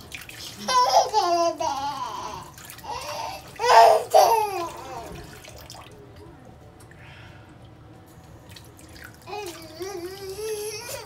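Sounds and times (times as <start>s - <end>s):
running tap water: 0.0s - 6.3s, 8.2s - 11.0s
baby crying and whimpering: 0.7s - 5.2s, 9.3s - 11.0s.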